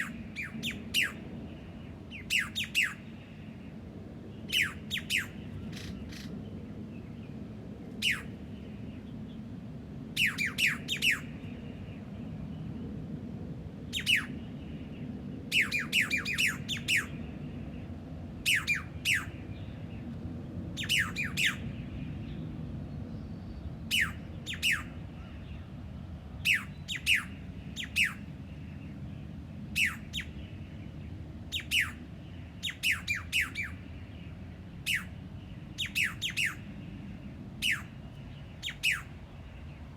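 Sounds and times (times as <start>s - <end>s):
steady low hum: 0.0s - 39.9s
bird sharp downward calls: 23.9s - 25.4s, 35.8s - 36.7s, 37.6s - 38.0s, 38.6s - 39.2s.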